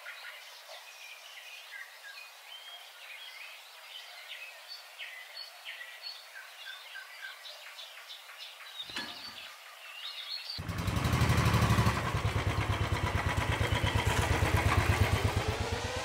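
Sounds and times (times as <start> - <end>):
faint steady hiss: 0.0 - 10.6.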